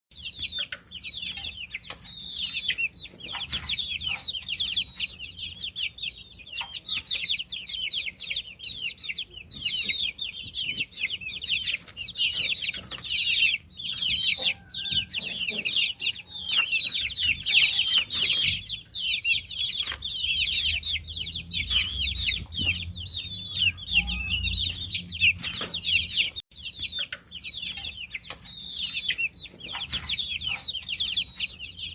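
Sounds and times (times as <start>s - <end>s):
baby chicks peeping: 0.1s - 31.9s.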